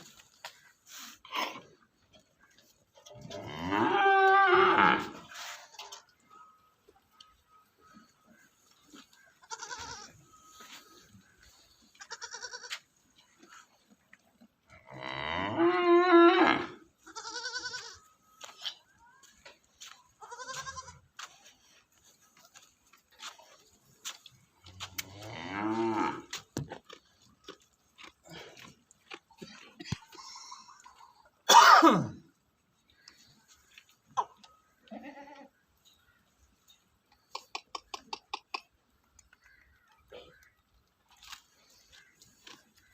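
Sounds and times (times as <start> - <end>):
goats bleating: 9.0 - 12.9, 16.3 - 18.5, 19.8 - 21.3, 34.8 - 35.5.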